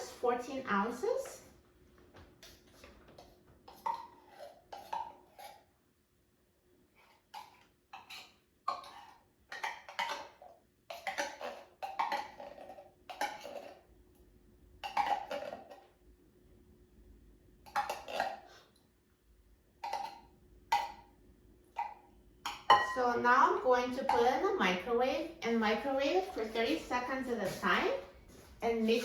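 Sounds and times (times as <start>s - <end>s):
utensil scraping a container: 2.4s - 5.7s, 10.9s - 13.8s.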